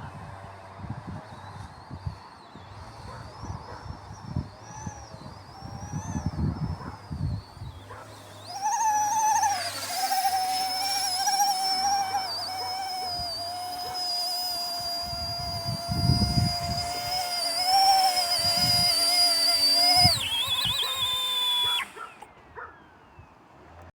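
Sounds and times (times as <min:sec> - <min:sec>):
rc helicopter rotor whine: 0:01.2 - 0:22.3.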